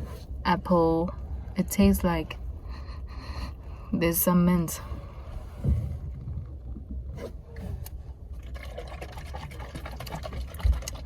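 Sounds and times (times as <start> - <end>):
low rumble: 0.0 - 9.7
liquid sipping sounds: 7.8 - 11.0.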